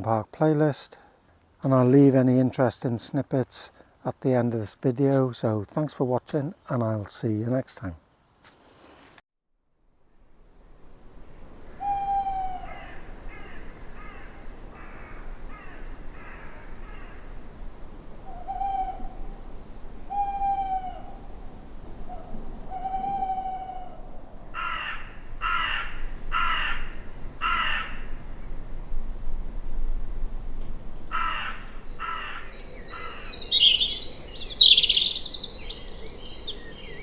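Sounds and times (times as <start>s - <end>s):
falling hoot-like bird calls: 11.7s - 17.3s, 18.2s - 19.4s, 20.1s - 26.8s, 31.1s - 37.0s
crow cawing: 12.4s - 17.3s, 22.8s - 28.2s, 31.1s - 36.7s
harsh bird notes: 31.1s - 37.0s.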